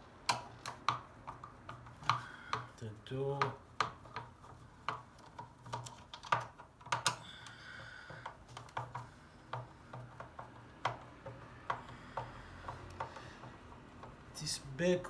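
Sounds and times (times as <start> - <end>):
screwdriver clicks and taps: 0.3 - 2.8, 3.4 - 14.2.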